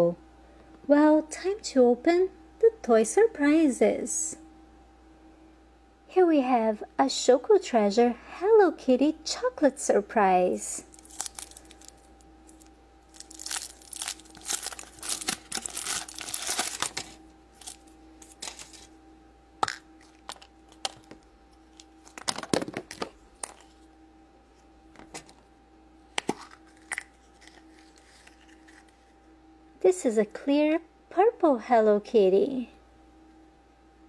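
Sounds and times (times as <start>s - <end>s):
faint steady hum: 0.0s - 34.0s
wrapper tearing and crinkling: 10.9s - 18.9s, 19.6s - 23.8s, 26.2s - 29.0s.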